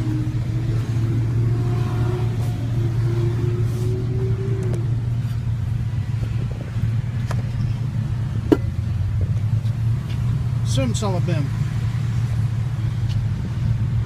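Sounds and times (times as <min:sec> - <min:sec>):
engine running low rumble: 0:00.0 - 0:14.0.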